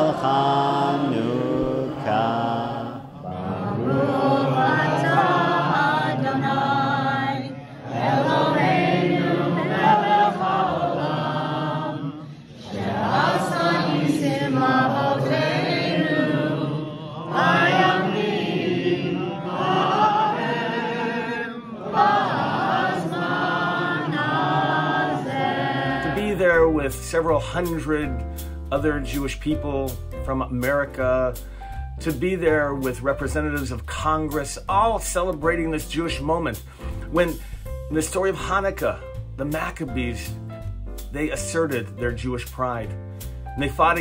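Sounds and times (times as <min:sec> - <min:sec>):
group of voices chanting a prayer: 0:00.0 - 0:27.6.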